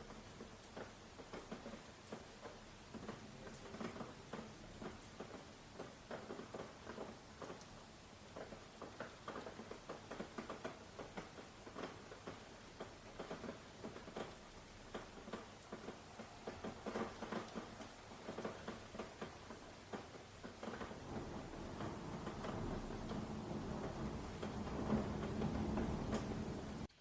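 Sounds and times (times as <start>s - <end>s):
light rain drops pattering: 0.0s - 27.0s.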